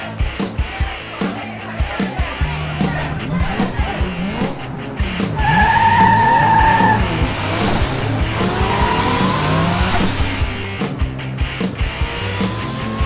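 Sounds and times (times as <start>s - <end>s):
background music with a beat: 0.0s - 13.0s
race car engines revving: 2.4s - 11.0s, 11.6s - 13.0s
tyre squeal: 2.8s - 10.6s.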